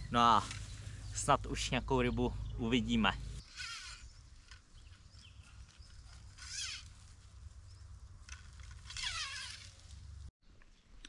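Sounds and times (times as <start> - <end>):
birds singing: 0.0 - 6.9.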